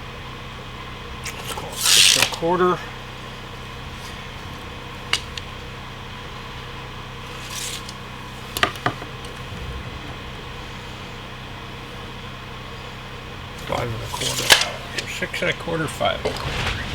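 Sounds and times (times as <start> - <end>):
steady low hum: 0.0 - 16.9
tools clicking and rubbing: 1.3 - 2.4, 7.3 - 8.0.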